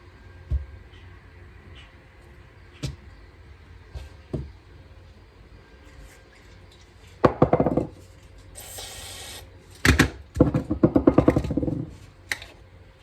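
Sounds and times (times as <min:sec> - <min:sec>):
short hiss: 0:08.6 - 0:09.4.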